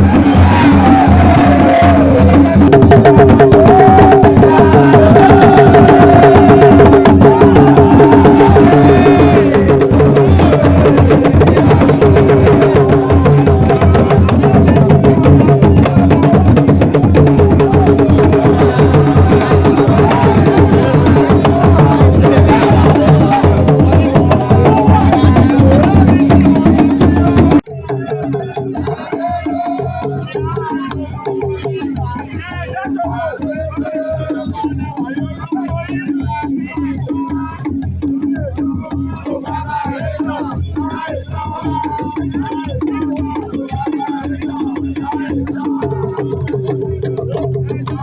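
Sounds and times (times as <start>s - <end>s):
drums with fast clacking strikes: 0.0s - 48.0s
pitched melodic line: 27.7s - 29.0s, 33.8s - 35.9s, 40.5s - 46.6s.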